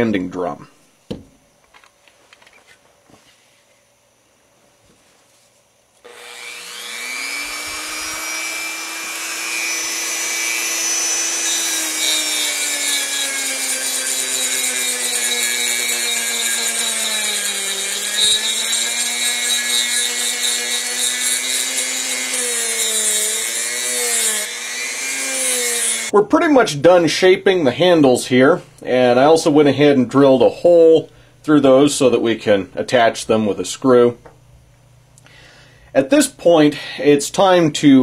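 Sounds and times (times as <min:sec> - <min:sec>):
rotary tool motor whine: 0:06.1 - 0:26.1
sanding drum rasping on wood: 0:06.2 - 0:26.1.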